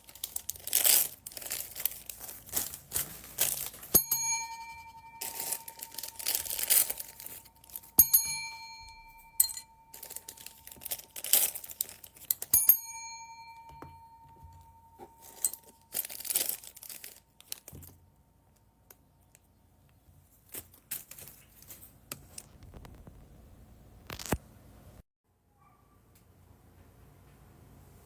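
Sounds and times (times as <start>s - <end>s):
plastic bags crinkling and tearing: 0.0s - 4.0s, 5.3s - 8.0s, 10.0s - 12.5s, 15.3s - 17.9s
bell-like ring: 3.9s - 16.6s.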